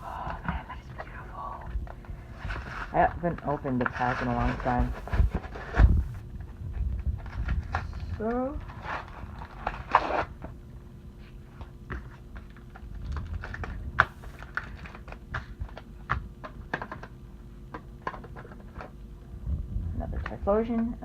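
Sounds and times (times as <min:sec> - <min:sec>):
card packaging clicking and crinkling: 0:08.6 - 0:10.6, 0:11.6 - 0:19.0.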